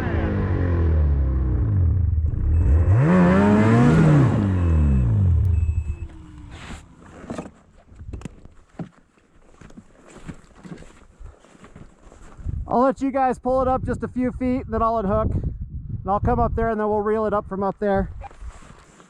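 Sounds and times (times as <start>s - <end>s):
engine revving under load: 0.0s - 7.0s.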